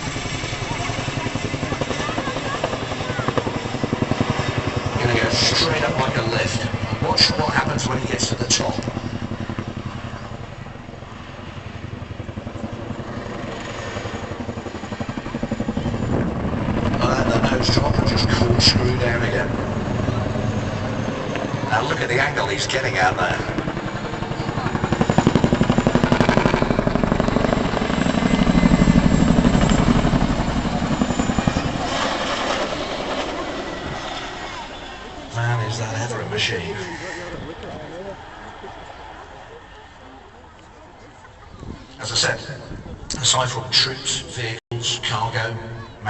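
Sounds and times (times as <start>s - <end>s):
helicopter rotor blades beating: 0.0s - 46.0s.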